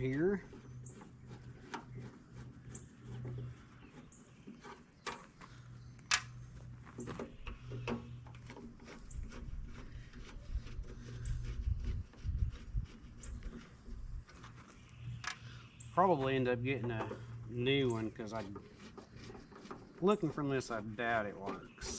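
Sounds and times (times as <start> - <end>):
clicks and knocks of tools: 6.0 - 6.4.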